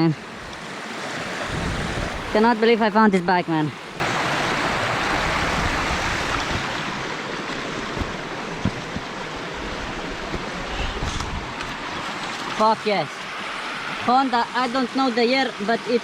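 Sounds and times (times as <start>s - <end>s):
wind rushing over microphone: 0.3s - 2.6s, 4.0s - 12.3s.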